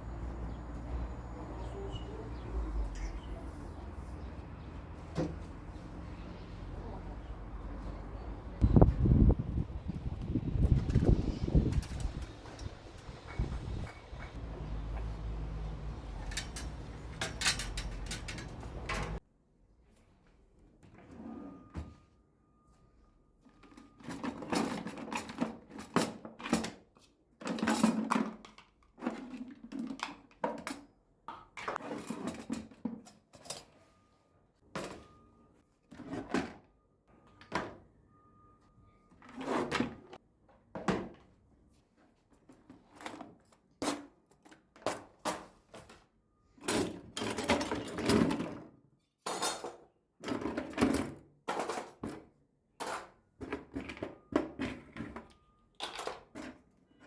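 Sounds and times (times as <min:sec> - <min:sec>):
objects knocking and clunking: 0:10.4 - 0:19.2
drawer or cupboard sounds: 0:16.1 - 0:19.2, 0:23.6 - 0:26.8, 0:31.5 - 0:33.9, 0:35.9 - 0:36.7, 0:39.2 - 0:41.3, 0:46.6 - 0:48.7, 0:49.3 - 0:55.2.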